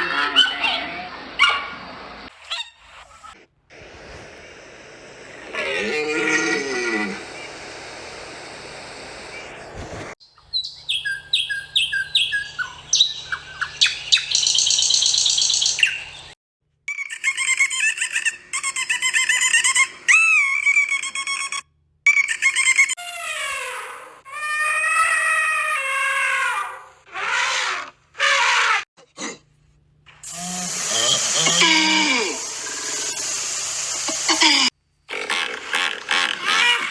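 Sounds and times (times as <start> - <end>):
bird chirps and calls: 10.2 - 16.4.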